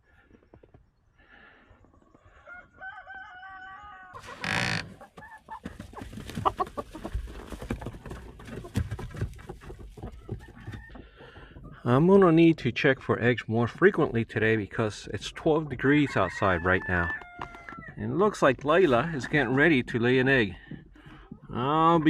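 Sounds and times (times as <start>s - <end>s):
chicken drawn-out call: 2.0s - 5.6s
chickens clucking: 4.1s - 12.4s, 20.7s - 22.0s
knocking and rustling: 4.2s - 11.8s.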